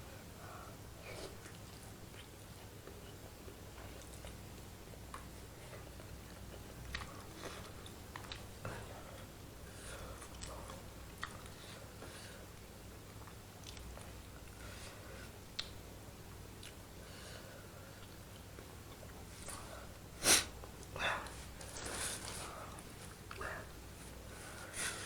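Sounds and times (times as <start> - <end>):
chewing noodles: 1.3 - 9.4, 10.1 - 14.7.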